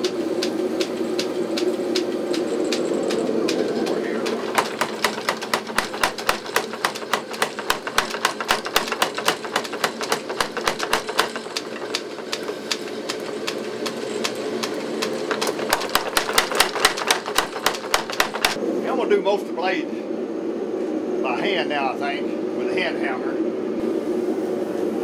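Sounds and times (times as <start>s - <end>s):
motor humming: 0.0s - 18.6s
trip hammer pounding hot steel: 0.0s - 18.6s.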